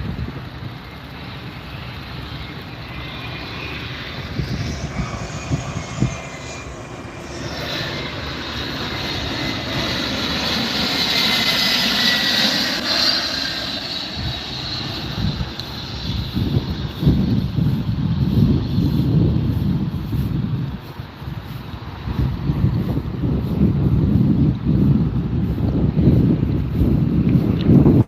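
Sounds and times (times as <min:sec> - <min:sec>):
faint falling whine: 0:00.0 - 0:20.9
airplane engines passing overhead: 0:00.0 - 0:28.0.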